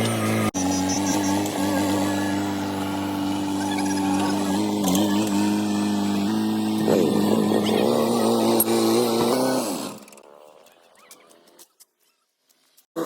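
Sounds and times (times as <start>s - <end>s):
heavy vehicle engine running: 0.0s - 8.8s.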